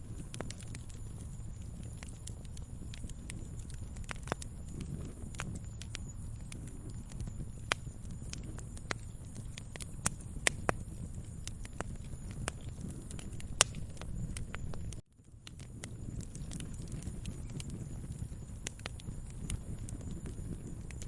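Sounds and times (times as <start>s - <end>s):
low steady rumble: 0.0s - 21.0s
wood fire crackling and popping: 0.0s - 21.0s.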